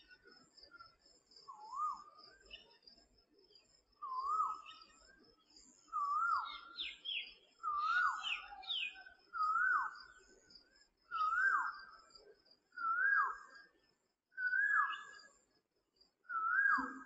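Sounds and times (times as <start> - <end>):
faint high chirping: 0.0 - 17.0
bird whistling phrase: 16.3 - 17.0.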